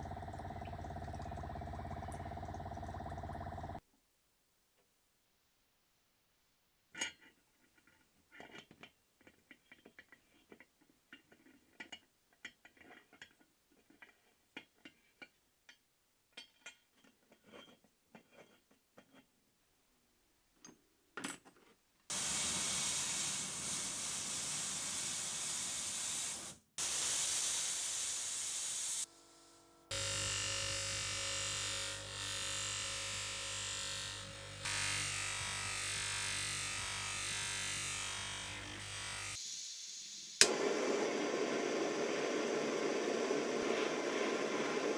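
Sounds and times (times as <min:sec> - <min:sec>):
loud steady hiss: 0:22.1 - 0:29.5.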